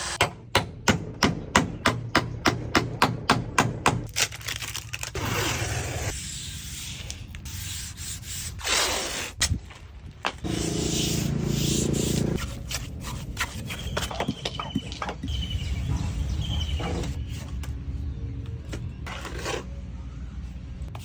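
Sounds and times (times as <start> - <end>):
trowel scraping mortar on bricks: 5.2 - 9.7, 10.4 - 14.8, 18.7 - 20.0.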